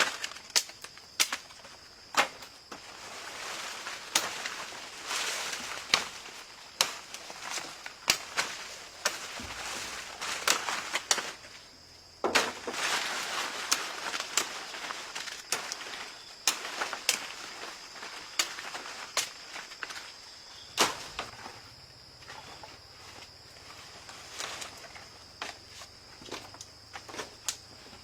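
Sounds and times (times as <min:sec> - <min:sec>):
rustling and swishing: 0:02.8 - 0:11.8.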